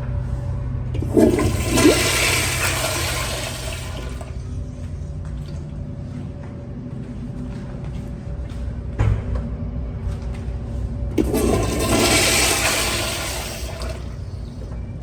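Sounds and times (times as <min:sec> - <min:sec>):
steady low hum: 0:00.0 - 0:15.0
toilet flushing: 0:00.9 - 0:04.6, 0:11.2 - 0:14.8.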